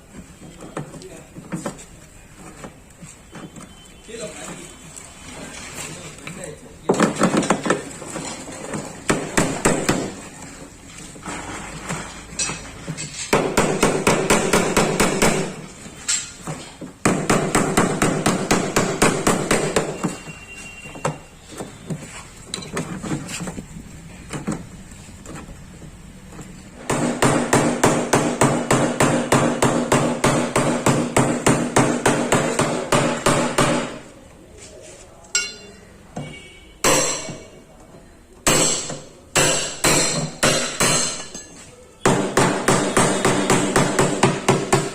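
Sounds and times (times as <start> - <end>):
hammer striking ringing sheet metal: 35.3 - 35.9, 36.8 - 37.5.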